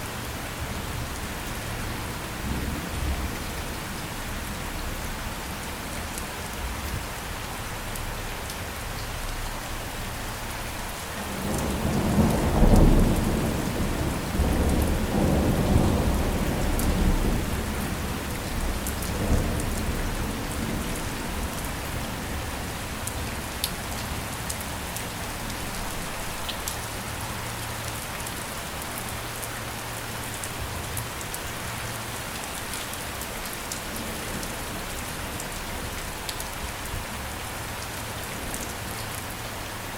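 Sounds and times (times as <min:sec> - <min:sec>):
steady rain: 0:00.0 - 0:39.9
thunder rumbling: 0:11.2 - 0:22.5.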